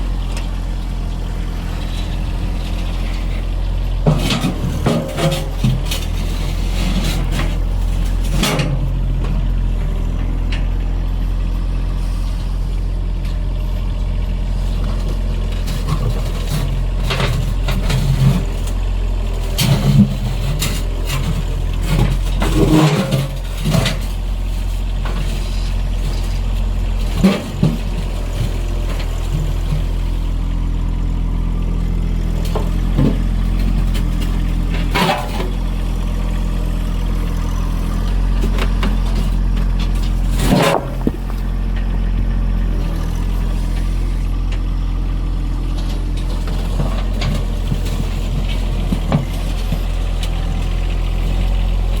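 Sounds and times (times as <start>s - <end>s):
tractor engine running: 0.0s - 52.0s
rocks knocking and clunking: 37.1s - 44.6s.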